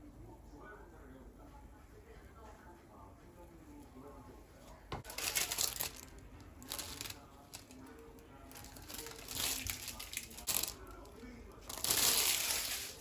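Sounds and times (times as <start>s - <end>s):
crinkling crunching noise: 5.0s - 13.0s.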